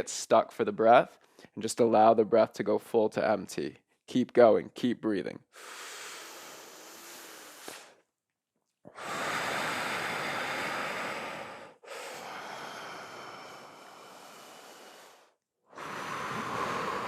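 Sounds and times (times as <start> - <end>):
person breathing deeply: 5.5 - 8.0, 8.9 - 17.0.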